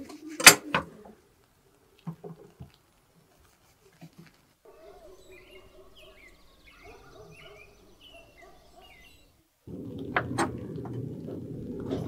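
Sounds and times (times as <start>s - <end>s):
birds chirping: 4.6s - 12.0s
muffled low noise: 4.7s - 12.0s.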